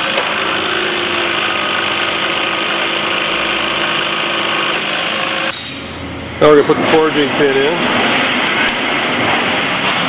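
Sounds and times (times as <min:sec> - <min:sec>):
hydraulic power unit running: 0:00.0 - 0:10.0.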